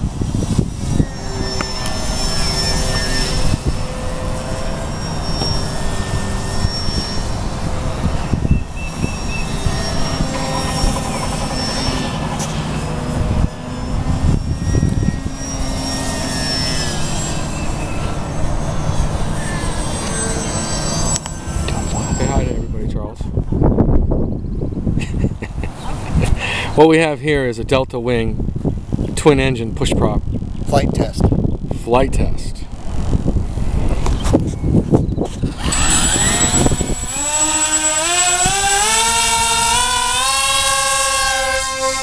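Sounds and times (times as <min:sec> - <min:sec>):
electric motors whining: 0:00.0 - 0:22.8, 0:32.8 - 0:42.0.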